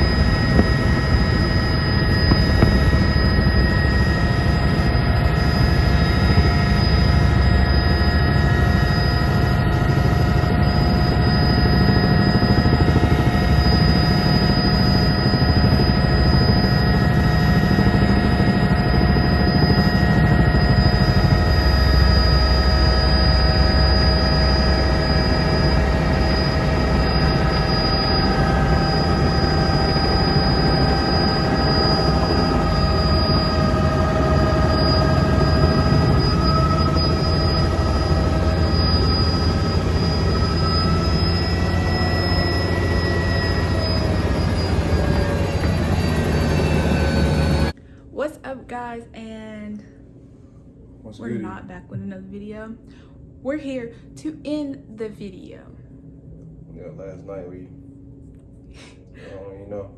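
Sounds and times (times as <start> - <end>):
helicopter rotor and engine drone: 0.0 - 47.8, 51.2 - 52.0
high whine: 0.0 - 47.8.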